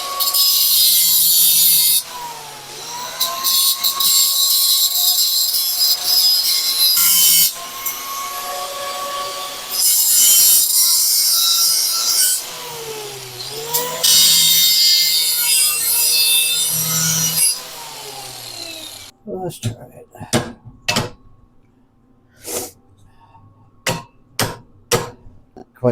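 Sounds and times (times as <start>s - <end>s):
angle grinder grinding metal: 0.0s - 19.1s
grinder motor whine: 0.0s - 19.1s.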